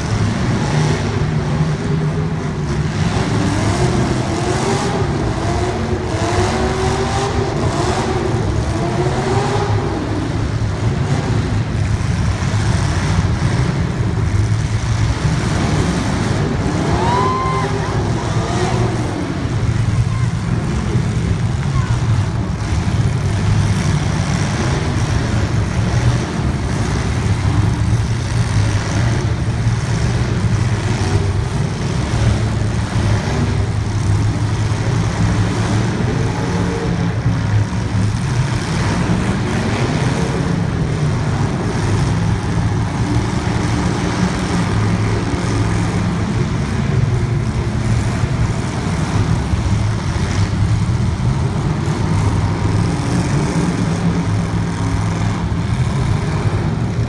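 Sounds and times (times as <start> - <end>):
vehicle engine droning: 0.0 - 57.0.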